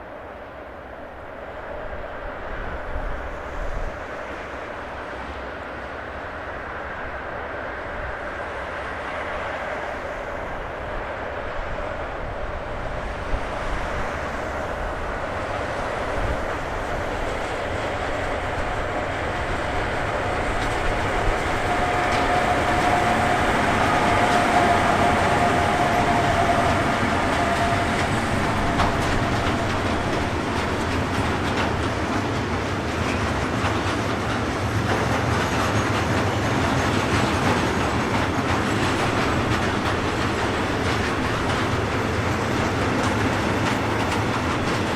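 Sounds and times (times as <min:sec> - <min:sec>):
train wheels clattering over rails: 0:12.8 - 0:44.9.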